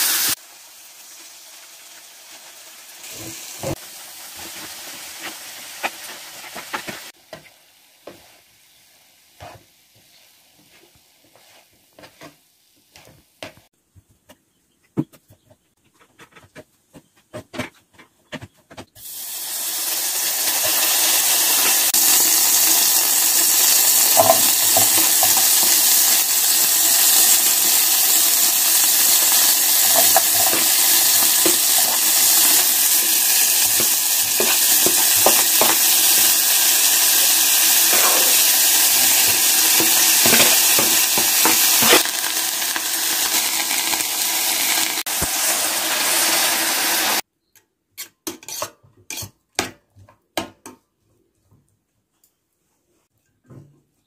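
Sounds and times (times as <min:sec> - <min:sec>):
loud steady sizzle: 0:00.0 - 0:11.0, 0:19.0 - 0:47.2
spatula stirring rice in a pan: 0:04.3 - 0:08.7, 0:09.3 - 0:13.6, 0:21.8 - 0:42.7, 0:48.0 - 0:49.4.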